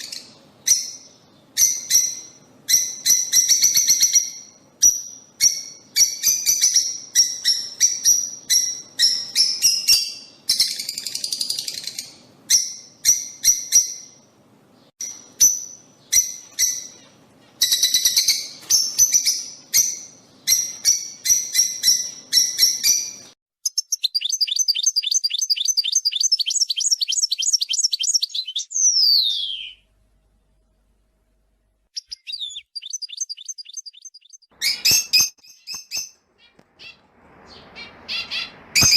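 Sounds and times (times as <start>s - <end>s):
lovebirds chirping: 0.0s - 30.7s, 31.9s - 38.9s
bird chattering trill: 20.5s - 29.8s, 32.0s - 38.9s.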